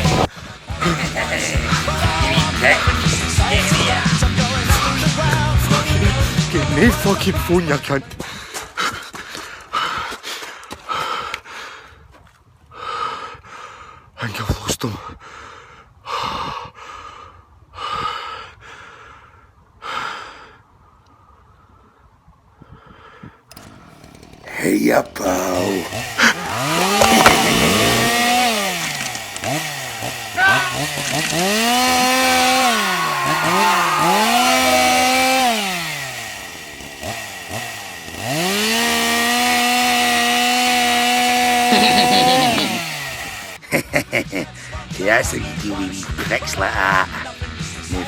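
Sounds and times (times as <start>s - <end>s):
chainsaw engine revving: 0.0s - 7.1s, 23.5s - 43.6s
man breathing heavily: 8.2s - 14.2s, 15.1s - 22.0s, 22.6s - 24.7s.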